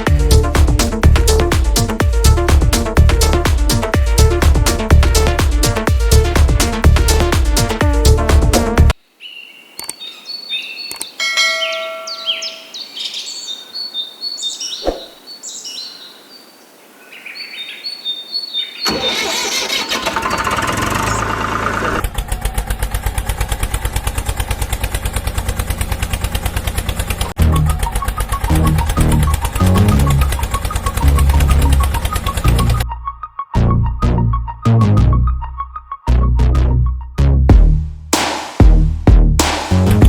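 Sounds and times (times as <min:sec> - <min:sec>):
engine running with rapid throb: 0:00.0 - 0:08.9, 0:20.0 - 0:32.8
bird-like chirps and whistles: 0:09.2 - 0:16.4, 0:17.1 - 0:18.9, 0:27.4 - 0:31.1.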